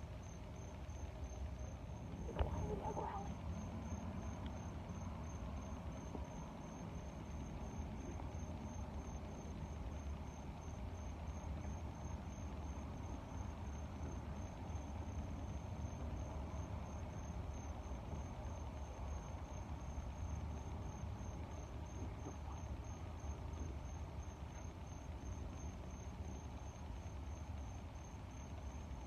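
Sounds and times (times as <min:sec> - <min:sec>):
cricket chirping: 0:00.0 - 0:29.0
low rumble of air: 0:02.0 - 0:04.3.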